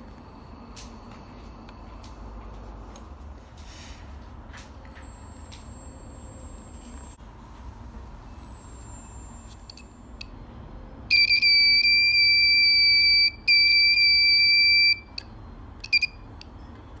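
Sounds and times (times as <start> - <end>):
alarm buzzer beeping: 0.0 - 3.7, 11.1 - 15.2.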